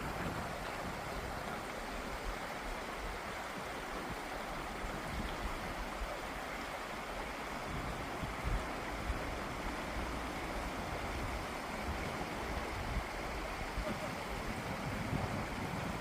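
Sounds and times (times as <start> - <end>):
wind buffeting microphone: 0.0 - 6.2, 7.4 - 16.0
steady rushing noise: 7.4 - 16.0.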